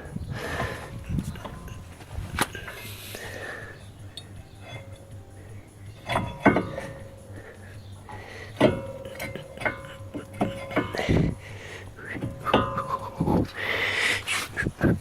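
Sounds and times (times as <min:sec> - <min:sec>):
metal tools clinking: 0:00.6 - 0:03.0, 0:04.1 - 0:13.6
ringing metal strikes: 0:04.1 - 0:13.6.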